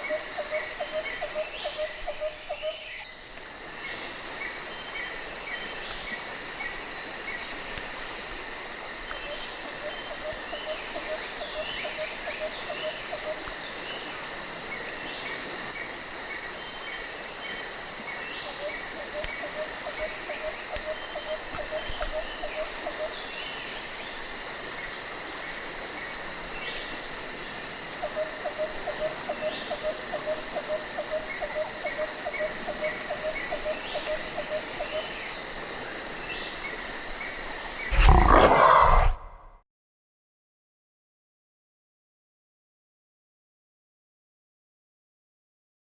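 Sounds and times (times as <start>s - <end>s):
insects buzzing and chirping: 0.0s - 39.5s.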